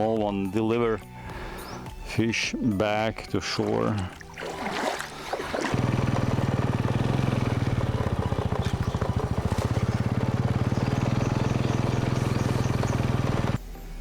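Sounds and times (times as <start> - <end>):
small engine chugging: 5.7 - 13.6.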